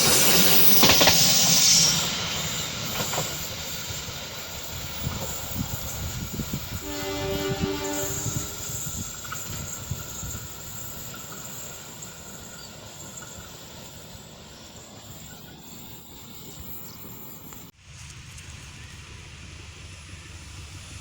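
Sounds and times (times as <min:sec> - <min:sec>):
train wheels rumbling on rails: 0:00.0 - 0:21.0
train horn: 0:06.7 - 0:09.1.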